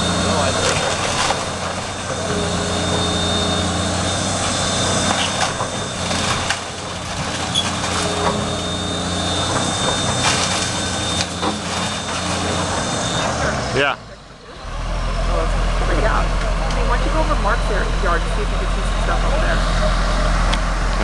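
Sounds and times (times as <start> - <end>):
diesel engine running: 0.0 - 21.0
wood and debris breaking: 0.2 - 13.3.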